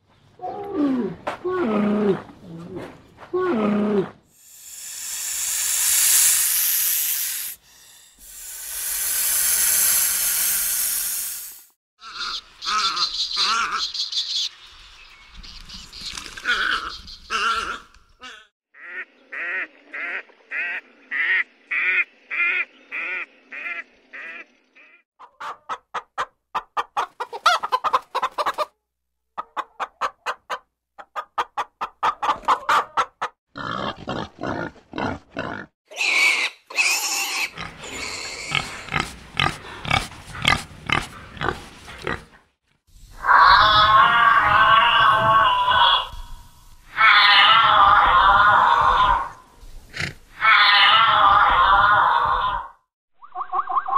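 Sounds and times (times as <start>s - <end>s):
harsh noisy animal calls: 43.1s - 46.3s, 46.9s - 52.8s.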